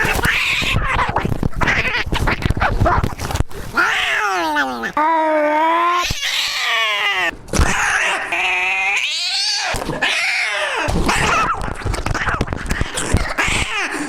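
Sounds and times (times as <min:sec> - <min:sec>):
cat yowling: 0:00.0 - 0:02.8, 0:03.7 - 0:13.9
noisy crackle: 0:00.0 - 0:03.8, 0:10.9 - 0:13.4.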